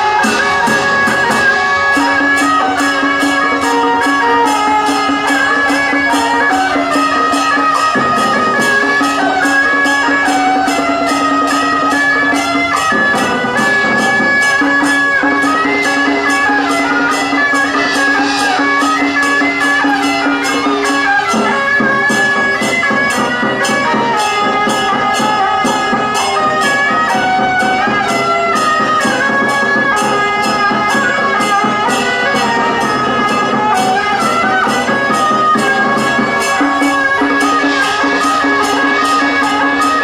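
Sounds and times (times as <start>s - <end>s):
cymbal crashes: 0.0s - 40.0s
reedy wind instruments melody: 0.0s - 40.0s.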